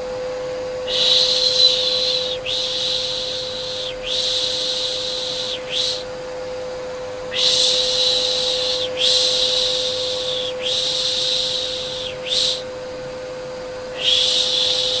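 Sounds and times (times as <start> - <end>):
vacuum cleaner hum: 0.0 - 15.0
person shushing: 0.9 - 6.1, 7.3 - 12.7, 14.0 - 15.0.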